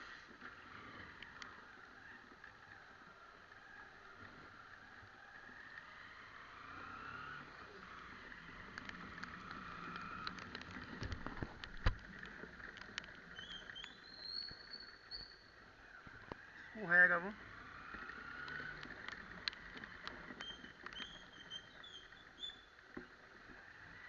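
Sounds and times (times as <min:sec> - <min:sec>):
motorcycle engine running: 0:14.9 - 0:24.0.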